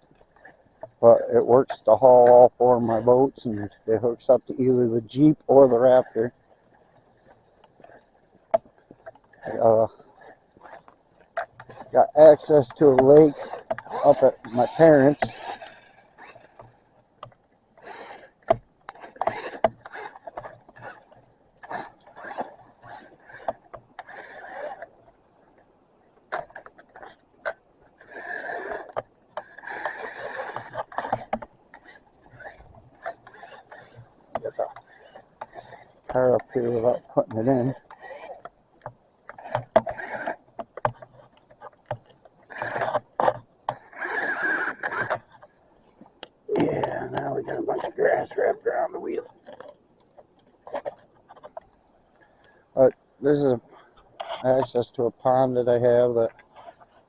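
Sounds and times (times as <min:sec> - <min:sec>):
toy car electric motor: 0:09.0 - 0:25.0, 0:26.3 - 0:38.5, 0:39.3 - 0:45.5.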